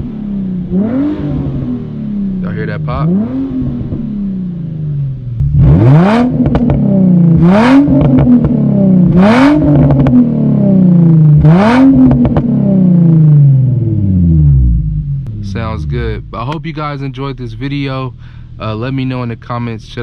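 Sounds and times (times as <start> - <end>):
car engine revving: 0.0 - 20.0
exhaust pops and crackles: 6.2 - 6.9, 7.6 - 8.6, 11.8 - 12.5, 15.2 - 20.0.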